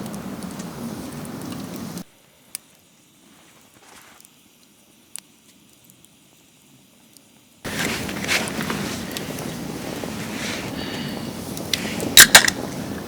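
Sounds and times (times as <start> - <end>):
wood fire crackling: 0.0 - 13.0
loud steady rushing noise: 7.7 - 13.0.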